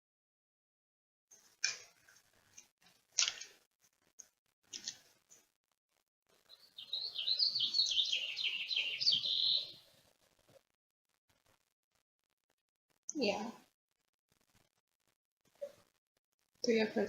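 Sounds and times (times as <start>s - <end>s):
small bird chirping: 6.4s - 10.0s.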